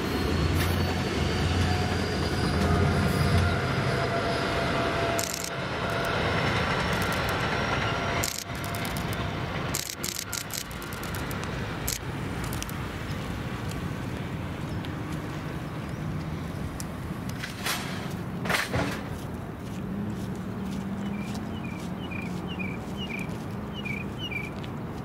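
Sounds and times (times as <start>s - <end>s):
train rumbling by: 0.0s - 25.0s
sharp clicks: 5.2s - 6.2s, 6.9s - 7.4s, 8.2s - 12.8s.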